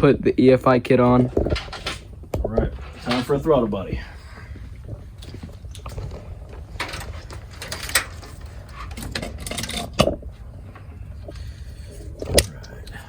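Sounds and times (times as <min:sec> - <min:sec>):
metal tools clinking and knocking: 0:05.2 - 0:10.2.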